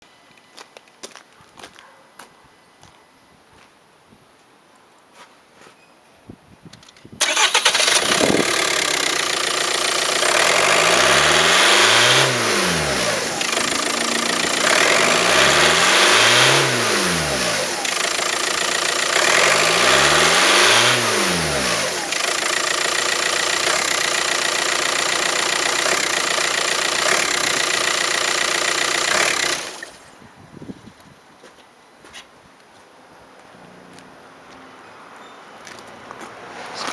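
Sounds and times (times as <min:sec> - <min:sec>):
diesel car engine revving and idling: 0:07.2 - 0:30.1.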